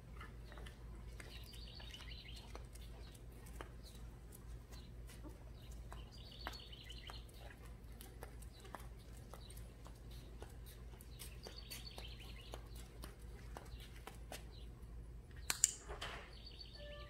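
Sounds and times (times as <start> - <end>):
bird chirping: 0.4 - 3.2, 5.6 - 7.6, 11.1 - 13.0, 16.3 - 17.0.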